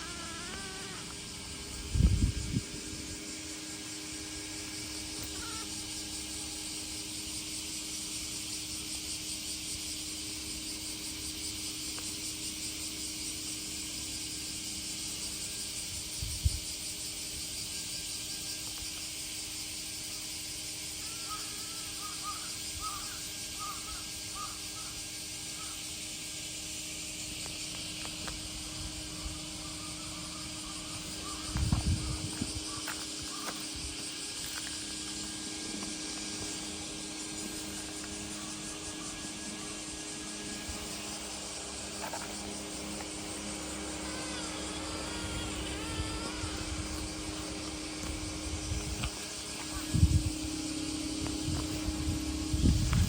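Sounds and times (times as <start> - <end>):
outdoor ambience hiss: 0.0 - 53.0
crows cawing: 5.2 - 5.8, 21.0 - 25.0, 25.6 - 25.8, 29.6 - 31.6, 32.6 - 33.6, 43.9 - 46.8.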